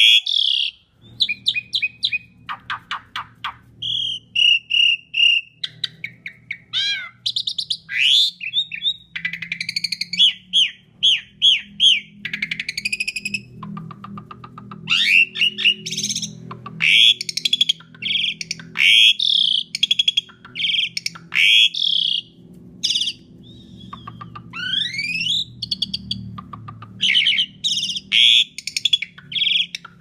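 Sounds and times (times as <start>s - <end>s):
starling singing: 0.0s - 30.0s.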